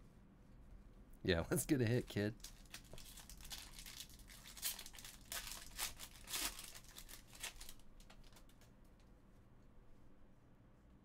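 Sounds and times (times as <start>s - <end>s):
foil wrappers crinkling and tearing: 2.4s - 8.7s.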